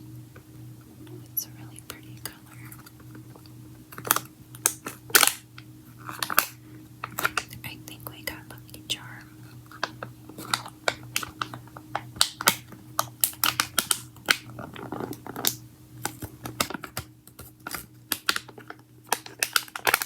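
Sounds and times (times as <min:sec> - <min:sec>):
faint steady hum: 0:00.0 - 0:20.0
fingernails tapping on packaging: 0:09.7 - 0:20.0.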